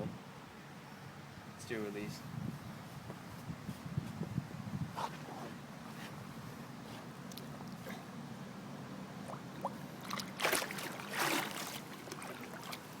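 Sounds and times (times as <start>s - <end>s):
fish splashing in water: 9.2s - 13.0s.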